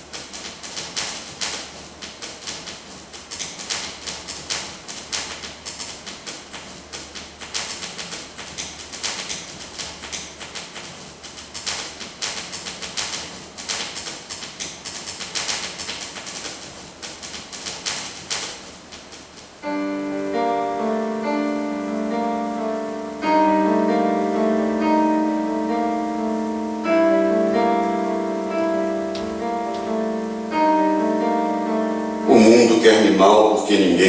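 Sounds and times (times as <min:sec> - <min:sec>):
piano-like instrumental music: 0:19.6 - 0:33.4.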